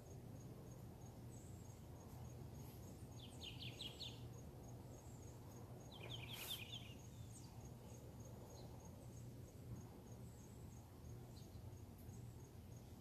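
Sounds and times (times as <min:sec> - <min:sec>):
faint low hum: 0:00.0 - 0:13.0
bird chirping: 0:01.1 - 0:09.6, 0:10.2 - 0:13.0.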